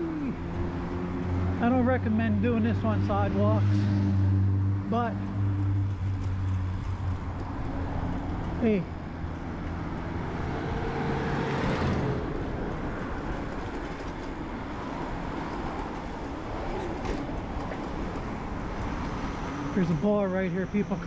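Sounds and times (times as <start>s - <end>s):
bike tyre hum: 0.0s - 3.7s, 5.4s - 20.2s
vehicle passing: 0.0s - 21.0s
wind on camera: 9.4s - 19.8s.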